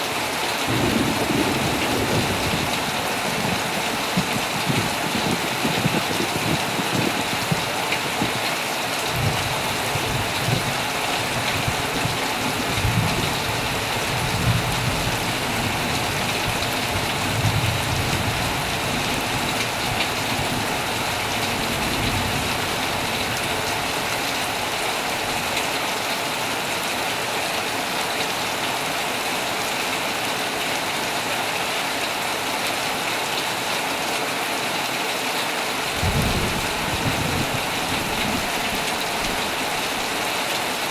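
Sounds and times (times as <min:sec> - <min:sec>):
heavy rain on a tent: 0:00.0 - 0:40.9
low rolling thunder: 0:00.7 - 0:08.5, 0:09.1 - 0:24.2, 0:35.9 - 0:40.5.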